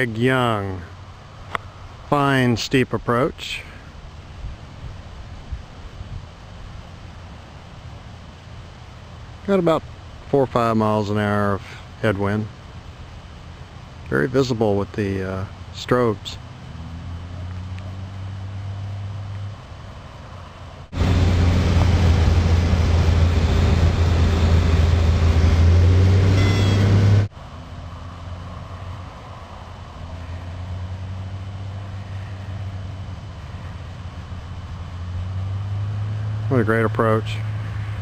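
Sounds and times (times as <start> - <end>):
light aircraft engine droning: 0.0 - 38.0
loud rushing noise: 20.8 - 27.3.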